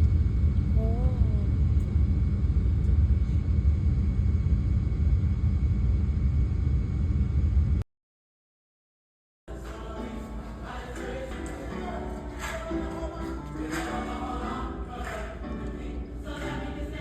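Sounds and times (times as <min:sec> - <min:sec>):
steady low rumble: 0:00.0 - 0:07.8.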